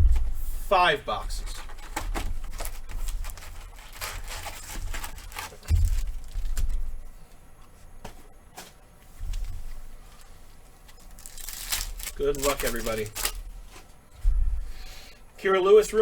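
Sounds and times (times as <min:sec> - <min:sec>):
cards rustling: 0:01.1 - 0:07.3, 0:09.2 - 0:14.0
wrappers tearing and crinkling: 0:01.4 - 0:07.0, 0:09.3 - 0:13.8.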